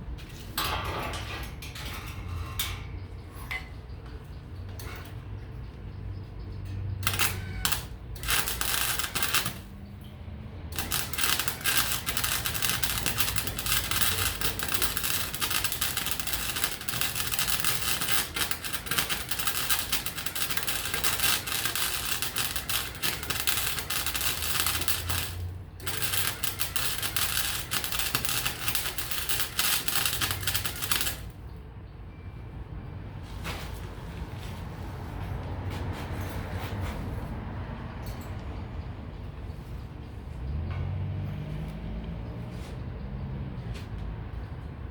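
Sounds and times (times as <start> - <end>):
welding arc crackling: 6.9 - 31.5.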